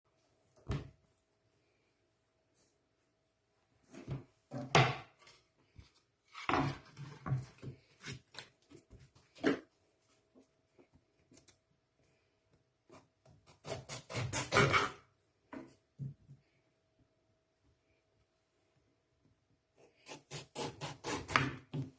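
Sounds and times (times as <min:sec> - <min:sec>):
knocking and scraping on hard surface: 0:03.9 - 0:05.4, 0:06.3 - 0:09.7.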